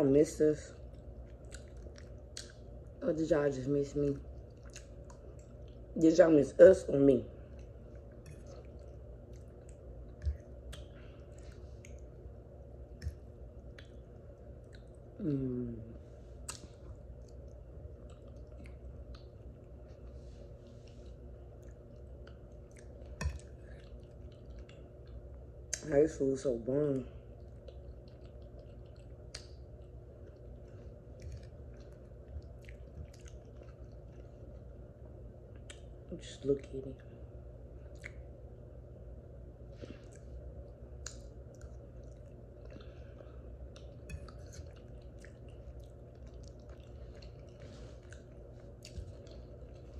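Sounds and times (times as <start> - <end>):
steady low hum: 0.0 - 49.9
chewing wet food: 0.6 - 3.2, 3.8 - 6.2, 7.3 - 26.0, 26.9 - 36.2, 37.0 - 38.7, 39.6 - 49.9.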